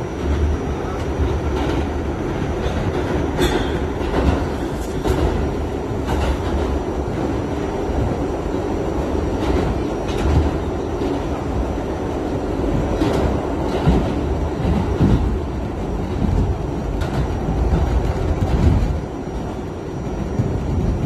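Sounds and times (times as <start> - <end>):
subway wheels rumbling on rail: 0.0 - 21.0.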